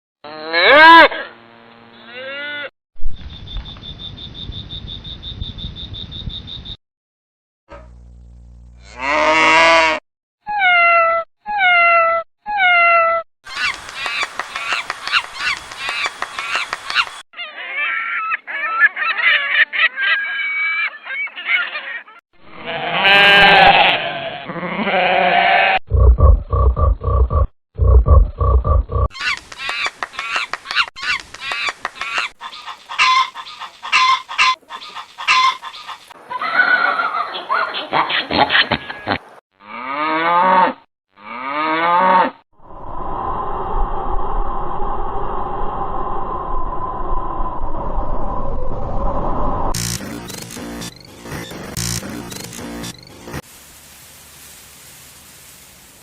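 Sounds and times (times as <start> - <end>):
farm birds calling: 13.5 - 17.2, 29.2 - 39.4
geese honking: 31.0 - 36.2.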